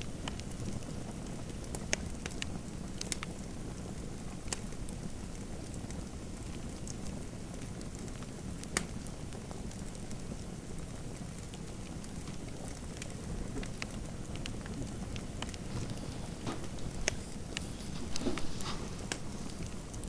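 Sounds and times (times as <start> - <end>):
fire crackling: 0.1 - 20.0
fire pops and snaps: 11.4 - 20.0.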